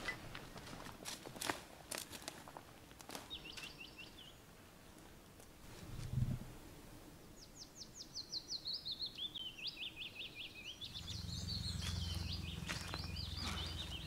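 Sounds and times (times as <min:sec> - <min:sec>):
songbird chirping and twittering: 0:03.1 - 0:04.5, 0:07.2 - 0:14.0
low steady rumble: 0:10.8 - 0:14.0.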